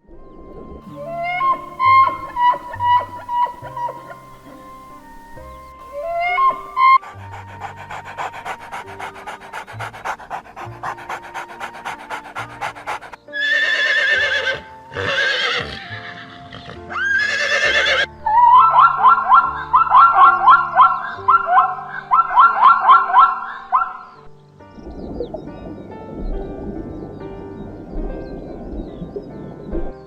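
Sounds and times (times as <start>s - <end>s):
background music: 0.0s - 30.0s
animal breathy pulses: 0.9s - 13.2s
animal high wavering calls: 0.9s - 16.2s, 16.9s - 24.1s
animal short rising calls: 1.0s - 14.2s.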